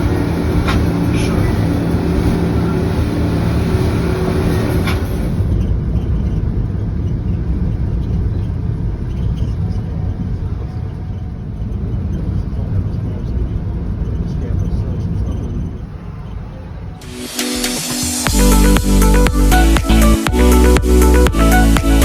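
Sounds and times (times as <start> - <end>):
engine low rumble: 0.0 - 22.0
high hiss: 17.0 - 22.0.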